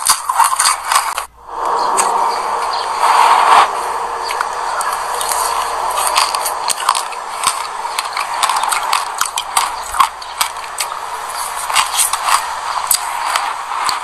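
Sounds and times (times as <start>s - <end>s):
chewing crunchy seeds: 4.8s - 14.0s.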